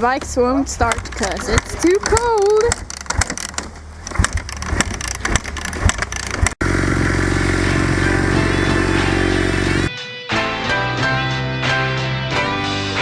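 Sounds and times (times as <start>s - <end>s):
dirt bike engine running: 0.0s - 9.9s
kick-starter clattering knocks: 0.2s - 6.6s.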